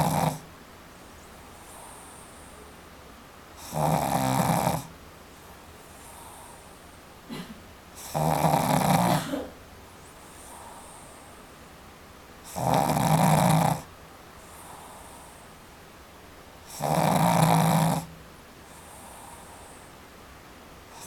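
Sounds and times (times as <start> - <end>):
dog snoring loudly: 0.0 - 0.5, 1.6 - 2.6, 3.6 - 4.9, 8.0 - 9.4, 12.4 - 15.4, 16.7 - 19.9
dog breathing quietly: 0.0 - 2.8, 3.5 - 7.0, 10.0 - 11.5, 12.4 - 15.7, 16.6 - 20.0.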